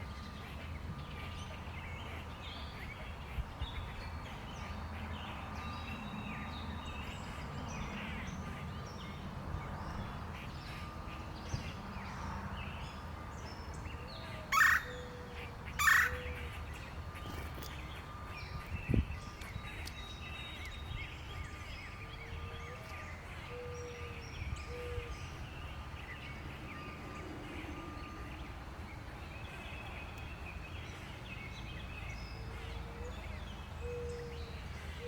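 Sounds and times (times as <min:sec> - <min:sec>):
birds chirping and twittering: 0:00.0 - 0:35.0
loud harsh bird calls: 0:14.2 - 0:18.1.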